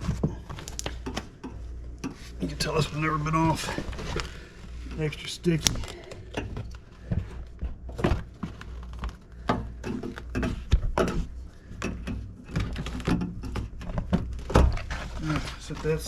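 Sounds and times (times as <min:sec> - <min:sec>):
crinkles and tacky tearing: 0:00.0 - 0:01.3, 0:14.3 - 0:16.0.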